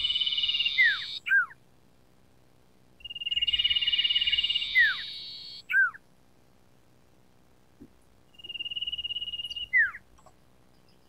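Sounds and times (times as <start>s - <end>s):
bird trilling song: 0.0s - 1.6s, 3.0s - 6.0s, 8.3s - 11.0s.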